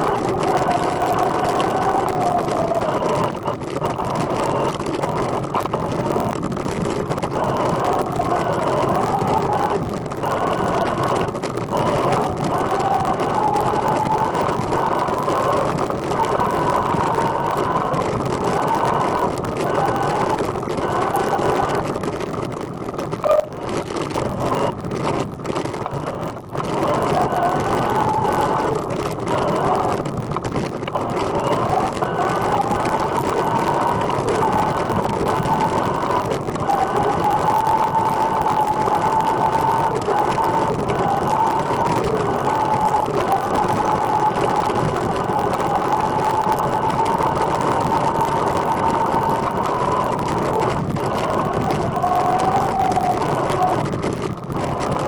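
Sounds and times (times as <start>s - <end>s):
trike rolling noise: 0.0s - 55.0s
wind noise: 0.0s - 55.0s
short sharp sound: 23.2s - 23.6s.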